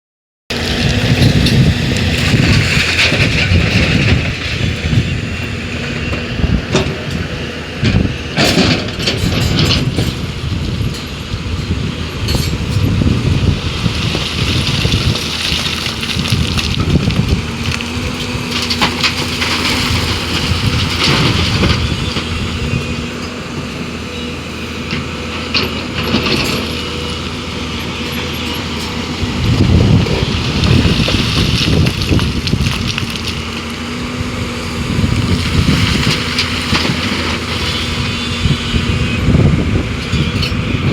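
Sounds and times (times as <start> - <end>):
excavator diesel engine: 0.5 - 40.9
bucket crunching and scraping: 0.6 - 4.8, 12.8 - 22.3, 28.5 - 38.2.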